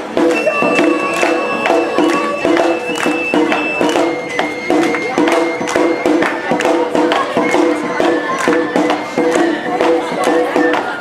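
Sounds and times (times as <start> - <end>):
bamboo flute high notes: 0.0 - 11.0
drums beating rapidly: 0.0 - 11.0.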